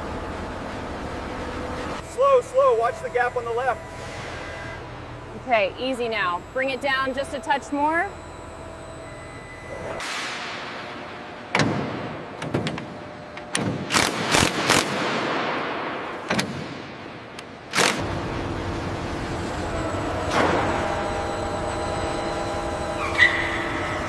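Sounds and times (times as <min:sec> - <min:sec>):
machine hum: 0:00.0 - 0:24.0
sharp knocks and bangs: 0:11.5 - 0:12.9.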